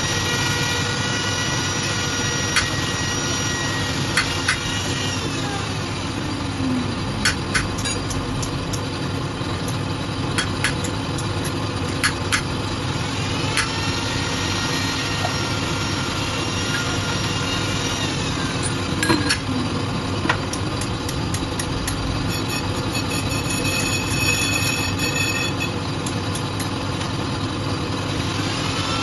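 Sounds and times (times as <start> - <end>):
tool squealing on metal: 0.0 - 5.9, 13.6 - 19.6, 22.2 - 25.9
lathe running: 0.0 - 29.0
sharp metallic clicks: 7.2 - 8.9.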